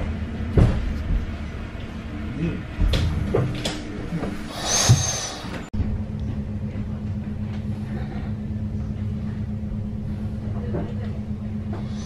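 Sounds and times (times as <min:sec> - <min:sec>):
low rumble: 0:00.0 - 0:12.0
train carriage hum: 0:00.0 - 0:12.0.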